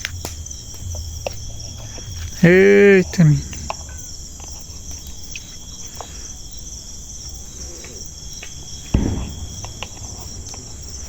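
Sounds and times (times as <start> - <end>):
crickets chirring: 0.0 - 11.0
low thump: 8.9 - 10.0.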